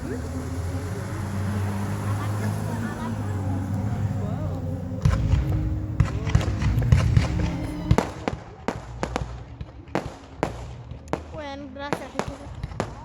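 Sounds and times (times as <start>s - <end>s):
fireworks banging and crackling: 4.6s - 13.0s.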